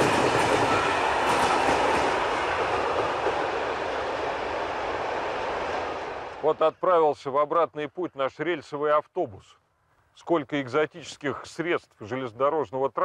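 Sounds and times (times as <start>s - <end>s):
rail bus rumbling along track: 0.0s - 6.5s.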